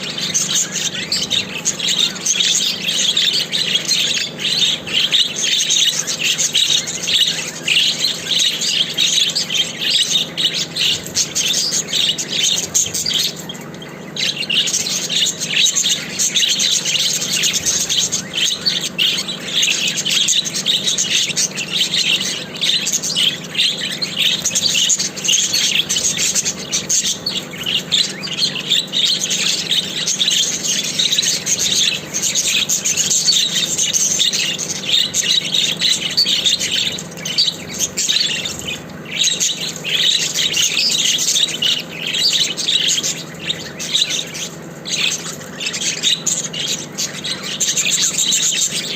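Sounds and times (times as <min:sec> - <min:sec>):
budgerigars chattering and warbling: 0:00.0 - 0:48.9.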